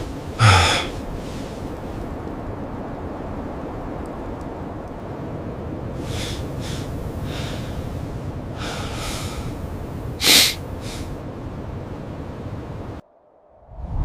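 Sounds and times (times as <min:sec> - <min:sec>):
low rumbling noise: 0:00.0 - 0:14.0
breathy huffs or gasps: 0:00.4 - 0:01.0.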